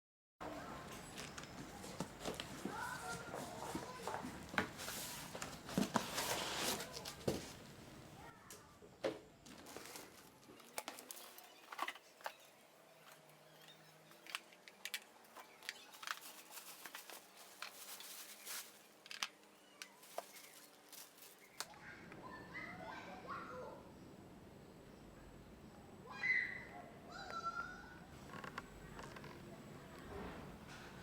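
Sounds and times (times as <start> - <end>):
crinkling and rustling: 0.8 - 7.8, 9.4 - 21.8.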